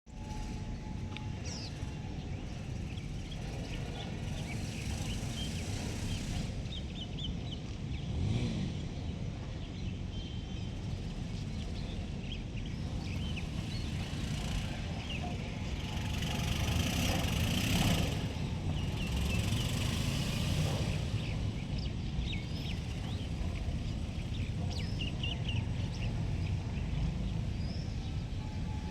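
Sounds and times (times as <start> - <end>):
low rumble of traffic: 0.1 - 28.9
vehicle passing: 8.0 - 9.5, 10.9 - 28.9.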